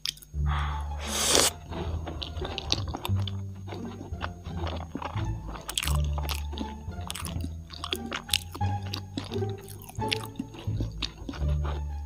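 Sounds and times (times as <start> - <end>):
sharp mouth clicks: 0.9 - 1.5
chewing: 1.0 - 12.0.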